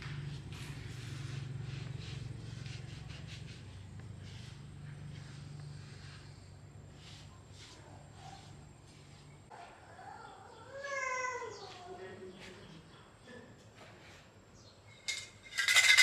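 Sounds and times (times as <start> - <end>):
small engine humming: 0.0 - 7.2.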